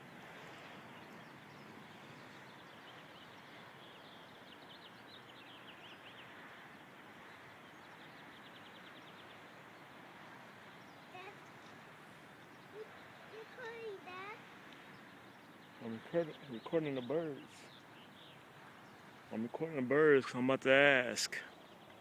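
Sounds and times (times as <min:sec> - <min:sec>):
birds chirping: 0:00.0 - 0:22.0
steady background hiss: 0:00.0 - 0:22.0
bird trill: 0:12.5 - 0:14.4.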